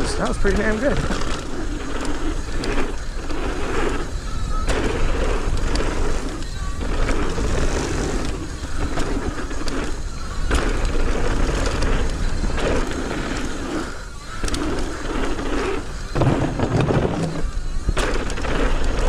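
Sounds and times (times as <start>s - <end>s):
bike clicking and rattling: 0.0s - 19.0s
tyres rolling on dirt: 0.0s - 19.0s
wind rushing over microphone: 0.0s - 19.0s.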